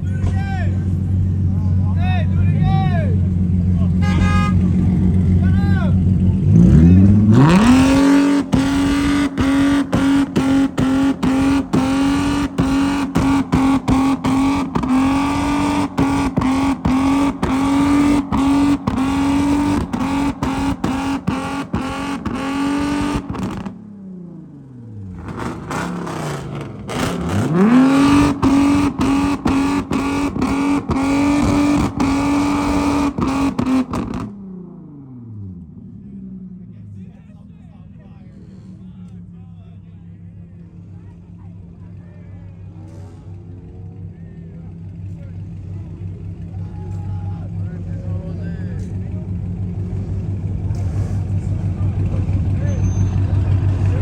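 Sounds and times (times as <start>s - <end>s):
car engine on rev limiter: 3.4s - 37.0s.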